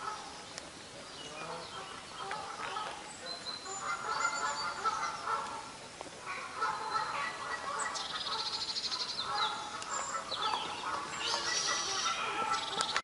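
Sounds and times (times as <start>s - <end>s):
low pitched bird calls: 6.7s - 13.0s
high whistled bird notes: 11.2s - 13.0s.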